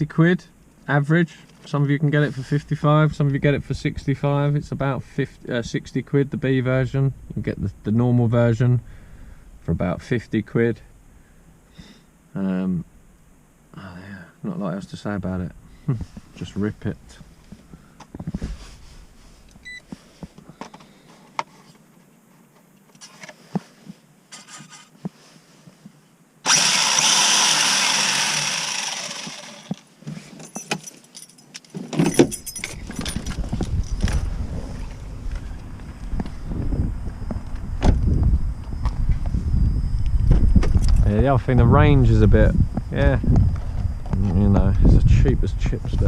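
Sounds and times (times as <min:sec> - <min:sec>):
electric motor whine: 0:26.4 - 0:29.9
low rumble with rattles: 0:32.1 - 0:46.0.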